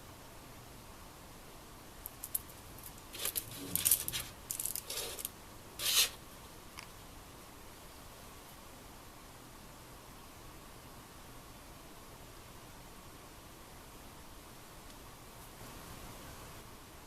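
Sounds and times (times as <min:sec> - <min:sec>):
scraping and rustling: 0:02.1 - 0:06.2.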